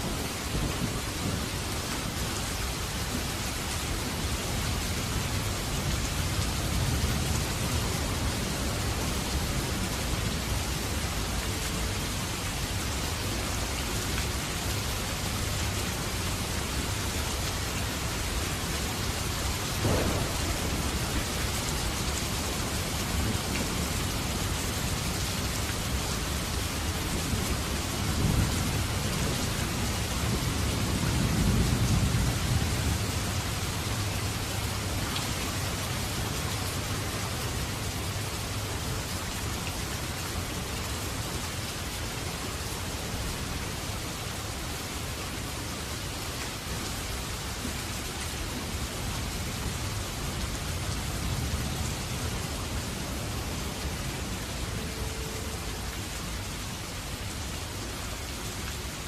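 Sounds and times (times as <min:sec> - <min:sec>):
heavy rain: 0:00.0 - 0:59.0
low rolling thunder: 0:19.6 - 0:25.0, 0:27.0 - 0:34.9.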